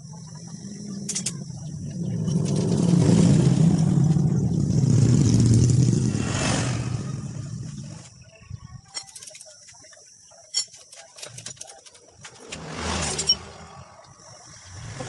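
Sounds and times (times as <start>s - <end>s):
vehicle engine passing by: 0.0s - 8.2s, 12.3s - 15.0s.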